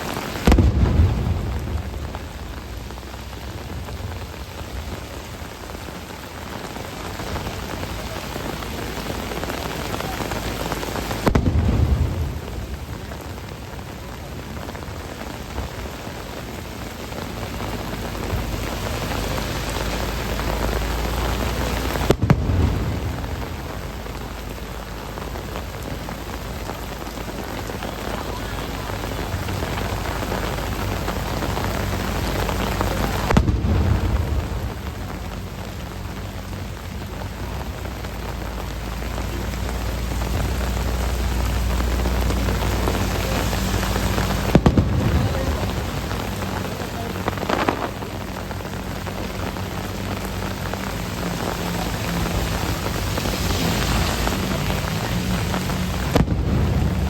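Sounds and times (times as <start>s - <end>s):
heavy rain downpour: 0.0s - 57.0s
deep booms: 0.3s - 5.4s, 9.0s - 14.3s, 17.6s - 24.1s, 29.0s - 35.5s, 39.0s - 48.2s, 51.0s - 57.0s.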